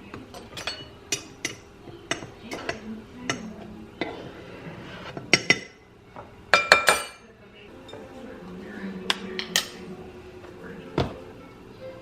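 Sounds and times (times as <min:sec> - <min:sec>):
kitchen utensils and dishes clinking: 0:00.0 - 0:08.3, 0:09.0 - 0:09.9.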